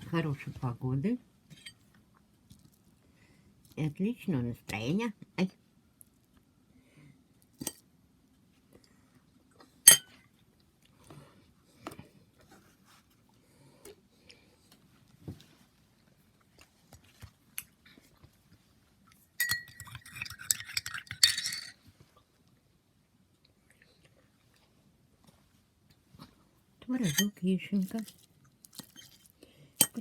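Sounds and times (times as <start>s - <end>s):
cutlery clinking against dishes: 9.9s - 10.1s, 19.4s - 21.7s, 27.0s - 27.3s.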